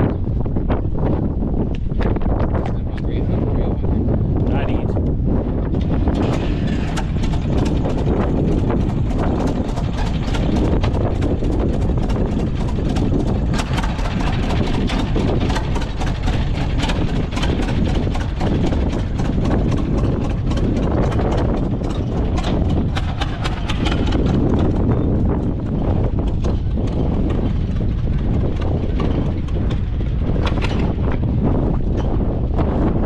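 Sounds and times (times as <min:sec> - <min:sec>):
farm machine engine running: 0:05.6 - 0:33.0
rapid clattering clicks: 0:05.8 - 0:31.2.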